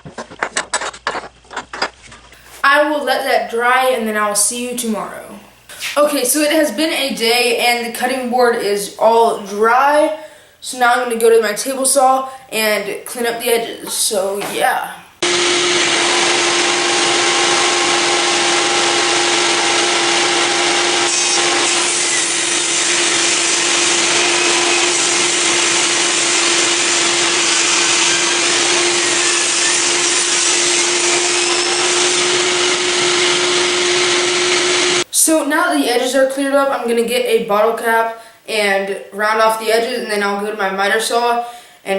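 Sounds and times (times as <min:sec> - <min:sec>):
table saw cutting wood: 0:15.2 - 0:35.1.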